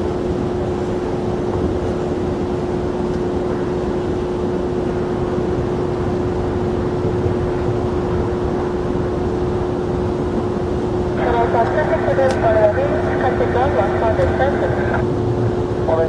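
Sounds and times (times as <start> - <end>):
jet engines running: 5.0 - 16.0.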